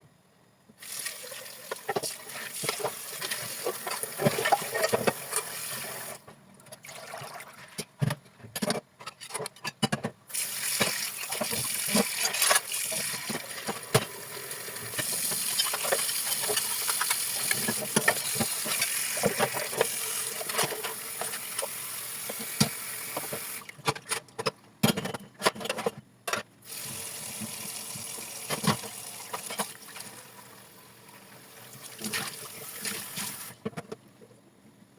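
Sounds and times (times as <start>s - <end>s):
dishes clicking and knocking: 8.0s - 10.2s, 14.8s - 21.7s, 22.3s - 26.5s.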